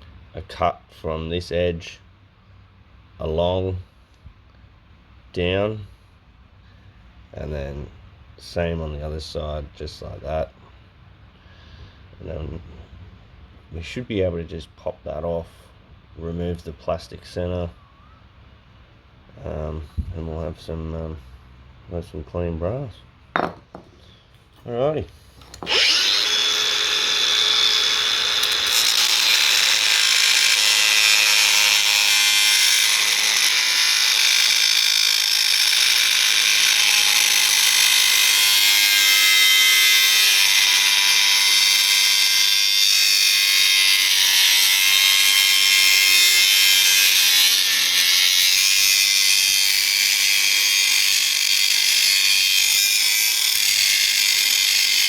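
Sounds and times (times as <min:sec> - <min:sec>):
angle grinder cutting brass: 0:25.5 - 0:55.0.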